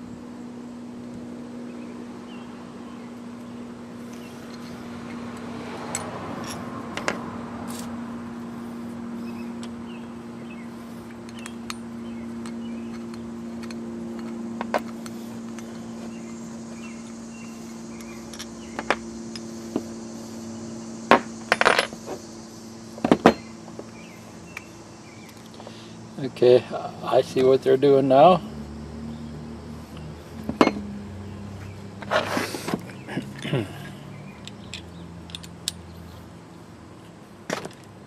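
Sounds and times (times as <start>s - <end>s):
steady low hum: 0.0s - 38.0s
metal parts clinking: 4.1s - 7.9s, 11.2s - 16.0s, 17.4s - 19.8s, 21.5s - 22.1s, 34.3s - 36.2s.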